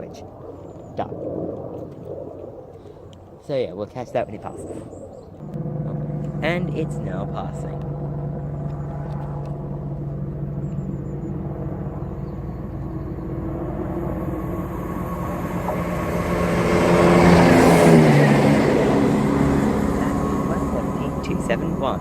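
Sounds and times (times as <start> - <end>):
diesel train passing: 5.4 - 22.0.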